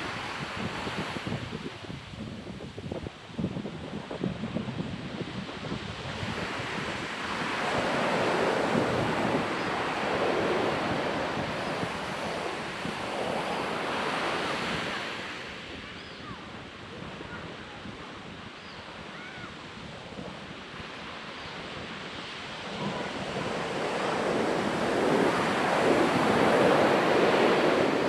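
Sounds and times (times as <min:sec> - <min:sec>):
wind buffeting the microphone: 0:00.0 - 0:28.0
ocean surf breaking: 0:06.0 - 0:15.8, 0:20.5 - 0:28.0.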